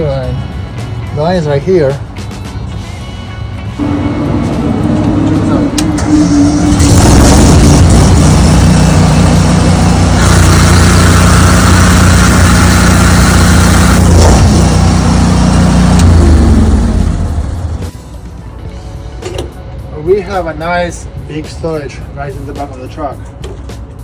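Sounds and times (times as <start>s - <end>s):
pressure washer engine running: 3.8s - 17.9s.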